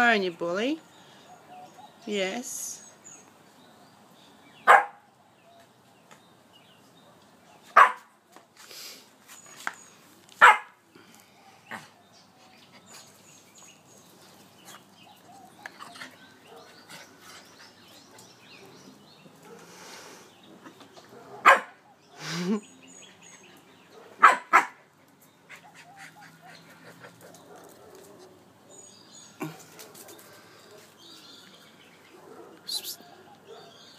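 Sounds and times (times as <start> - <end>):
puppy barking: 4.7 - 5.0, 7.7 - 8.1, 10.4 - 10.8, 21.1 - 21.9, 24.0 - 24.8, 32.1 - 33.8.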